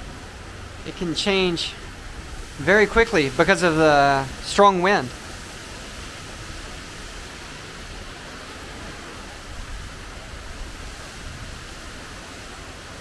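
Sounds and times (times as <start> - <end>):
heavy rain hissing: 0.0 - 13.0
low rumble of wind: 0.0 - 13.0.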